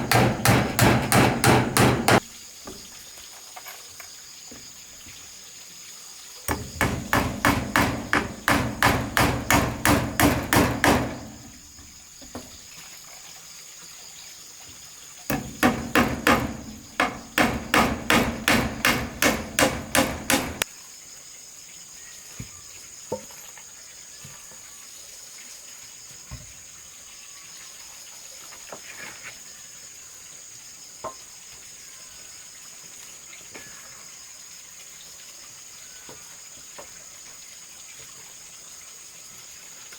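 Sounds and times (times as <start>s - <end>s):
hammer blows on wood: 0.0s - 2.3s, 6.5s - 11.6s, 15.3s - 20.6s
high insect drone: 0.0s - 12.6s, 14.1s - 21.8s.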